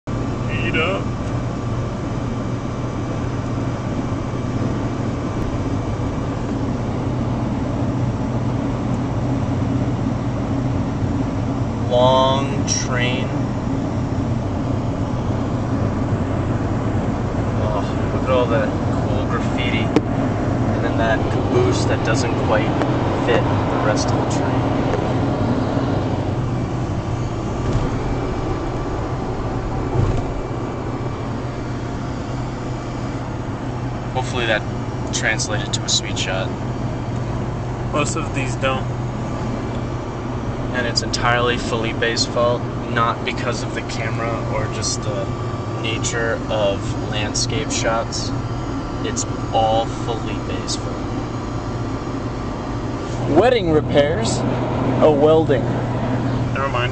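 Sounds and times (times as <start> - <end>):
vehicle rumble with low hum: 0.0 - 56.9.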